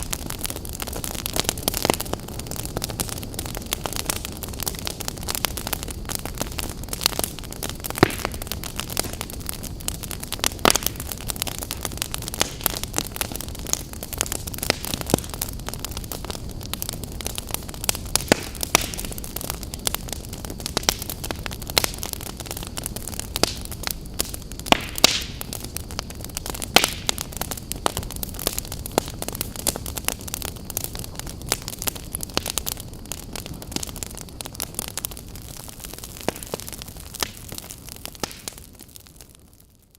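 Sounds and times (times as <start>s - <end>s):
campfire crackling and popping: 0.0s - 39.9s
low rush of flame: 0.0s - 39.9s.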